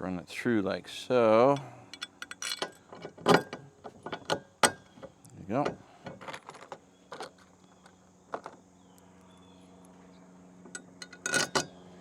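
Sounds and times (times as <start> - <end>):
faint low hum: 0.0 - 12.0
metal bolts clinking: 1.5 - 8.6, 10.7 - 11.7.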